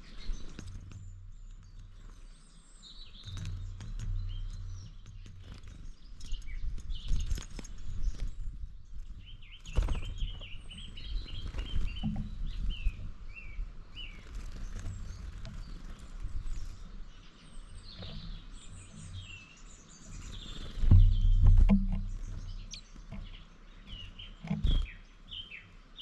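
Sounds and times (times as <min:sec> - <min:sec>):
wild birds chirping: 0:00.0 - 0:26.0
low rumbling: 0:14.9 - 0:25.6.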